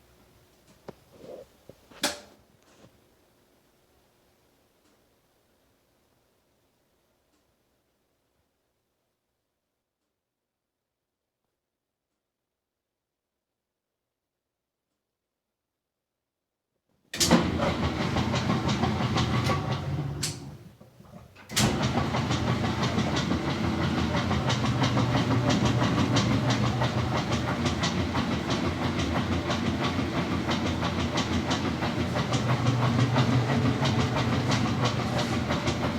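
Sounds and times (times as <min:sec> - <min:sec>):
washing machine clattering: 0:17.2 - 0:35.9.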